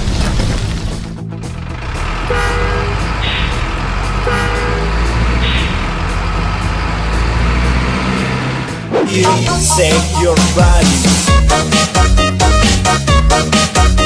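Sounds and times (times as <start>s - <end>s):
truck engine rumbling: 0.0s - 14.0s
truck horn toots: 2.2s - 8.0s.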